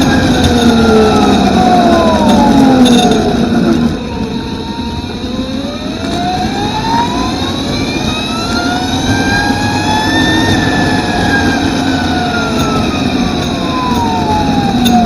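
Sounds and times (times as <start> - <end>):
electric motor whine: 0.0 - 15.0.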